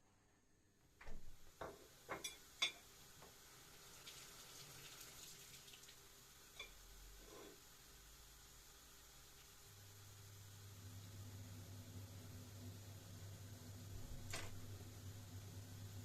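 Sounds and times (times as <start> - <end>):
dishes clinking in sink: 1.0 - 2.9, 6.5 - 7.6
kitchen tap running: 1.0 - 6.8.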